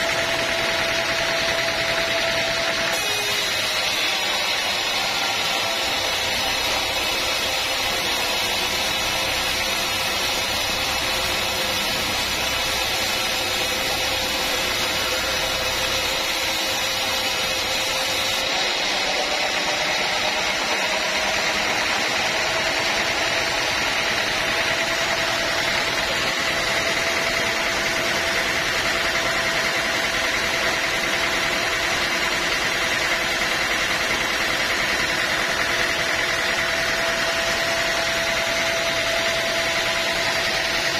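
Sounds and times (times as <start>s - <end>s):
sawmill machinery humming: 0.0s - 40.9s.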